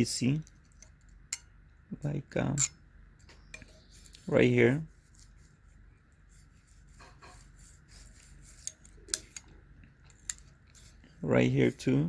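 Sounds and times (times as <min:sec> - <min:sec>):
feeler gauge scraping metal: 0:06.3 - 0:09.5, 0:10.1 - 0:12.0.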